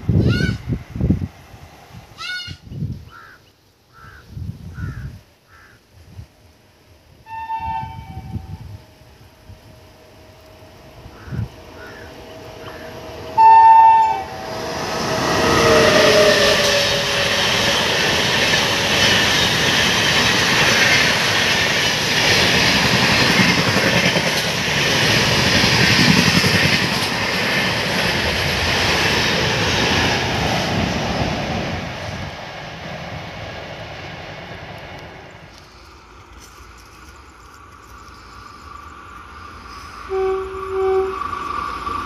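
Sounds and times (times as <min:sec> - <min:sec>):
locomotive horn blast: 0:07.2 - 0:17.9, 0:40.1 - 0:41.3
train coaches rushing past: 0:07.3 - 0:42.0.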